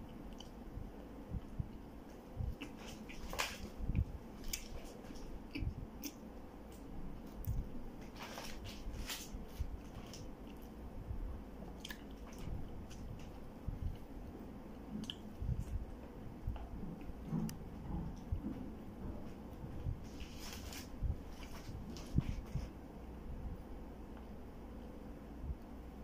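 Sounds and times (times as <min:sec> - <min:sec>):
mouth clicks and smacks: 0:00.1 - 0:00.6, 0:02.4 - 0:07.7, 0:11.8 - 0:13.2, 0:14.9 - 0:15.8
man chewing: 0:00.2 - 0:00.6, 0:02.4 - 0:10.8, 0:11.7 - 0:14.0, 0:15.0 - 0:15.8.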